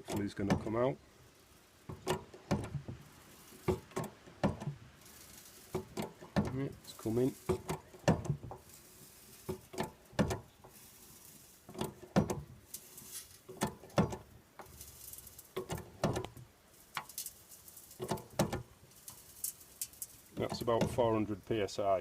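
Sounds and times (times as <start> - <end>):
hand pump clicking and knocking: 0.0 - 0.8, 1.8 - 10.8, 11.6 - 12.8, 13.4 - 17.3, 17.9 - 18.8, 19.8 - 21.3.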